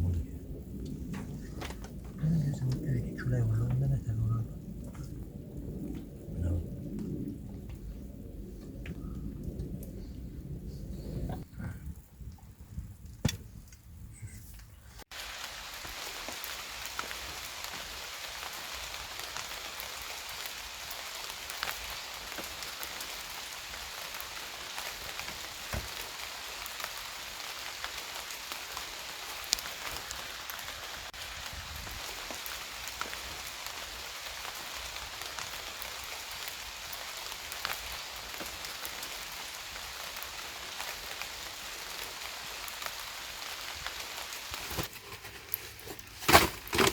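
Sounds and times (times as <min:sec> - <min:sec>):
low rumble: 0:00.0 - 0:13.0
steady rain hiss: 0:00.0 - 0:13.0, 0:14.6 - 0:46.9.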